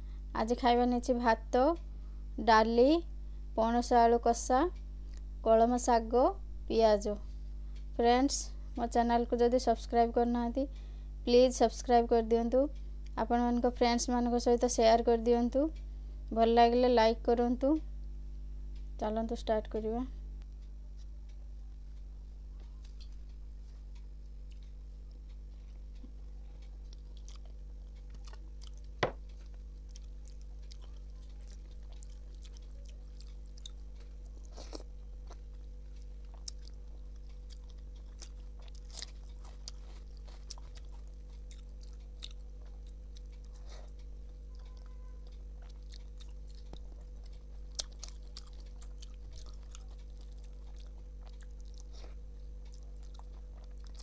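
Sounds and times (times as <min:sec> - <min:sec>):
steady low hum: 0:00.0 - 0:54.0
person chewing food: 0:20.6 - 0:54.0.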